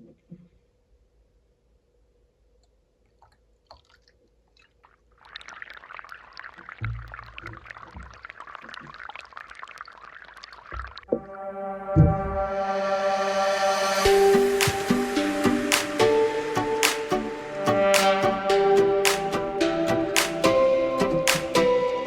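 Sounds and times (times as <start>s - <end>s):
water pouring and splashing: 3.2s - 11.2s
music: 11.1s - 22.0s.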